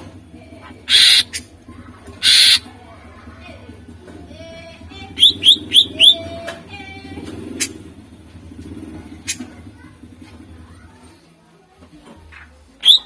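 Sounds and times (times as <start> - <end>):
bird singing: 0.7 - 1.5, 2.2 - 2.6, 5.1 - 6.5, 12.8 - 13.0.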